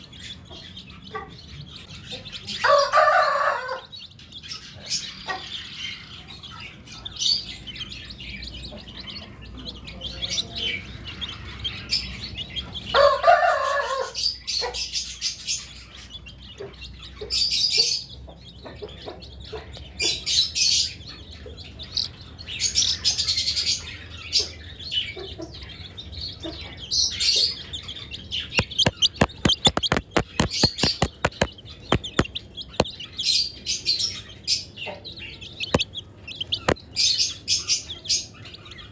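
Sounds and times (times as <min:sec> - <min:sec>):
budgerigars chirping: 0:00.0 - 0:38.9
sharp clicks or taps: 0:28.6 - 0:32.9, 0:35.7 - 0:35.9, 0:36.6 - 0:36.8.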